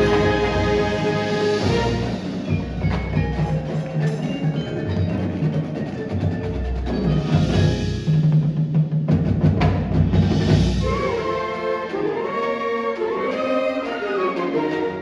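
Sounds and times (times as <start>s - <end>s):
held wind instrument melody: 0.0s - 4.6s, 10.6s - 15.0s
drum and timpani rolls: 0.0s - 14.8s.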